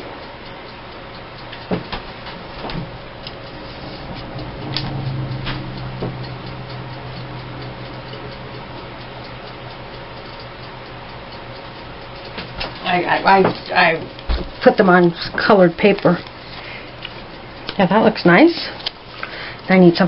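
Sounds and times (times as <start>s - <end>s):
low hum: 0.0s - 17.8s
mechanical timer ticking: 0.0s - 20.0s.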